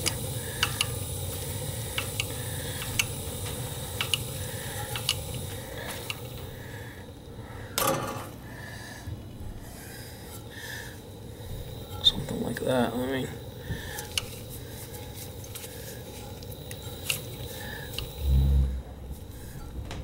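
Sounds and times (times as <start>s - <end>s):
light metallic clinks and ticks: 0.0s - 6.6s
gas boiler burner rumbling: 0.0s - 20.0s.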